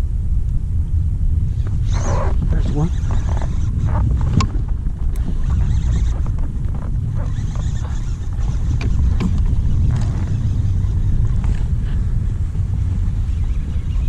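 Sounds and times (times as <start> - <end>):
wind buffeting microphone: 0.0 - 14.0
small clicks and knocks: 3.0 - 10.3.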